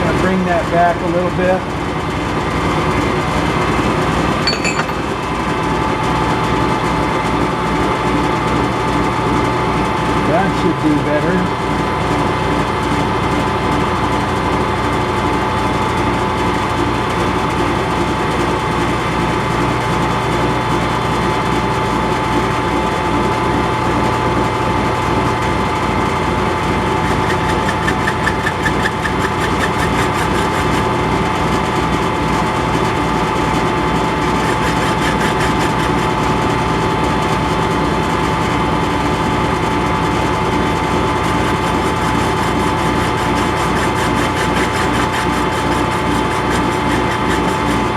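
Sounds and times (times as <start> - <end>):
metal lathe cutting: 25.6 - 47.9.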